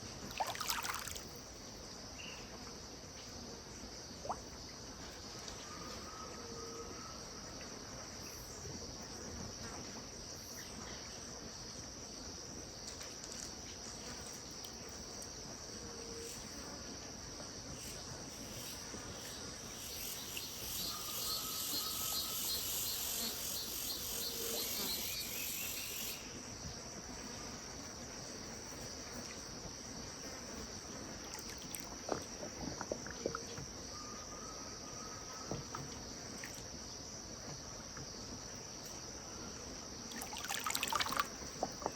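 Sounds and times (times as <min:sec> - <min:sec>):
steady high insect drone: 0:00.3 - 0:41.9
pulsing insect buzz: 0:18.6 - 0:26.3.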